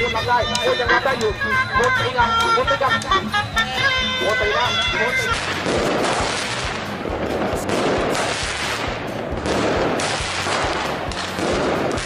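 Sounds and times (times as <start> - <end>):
firecrackers and fireworks bangs: 5.0 - 12.0.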